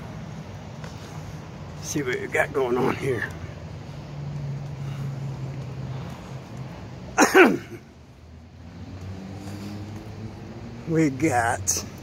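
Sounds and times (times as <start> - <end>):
vehicle engine idling: 0.0 - 7.0.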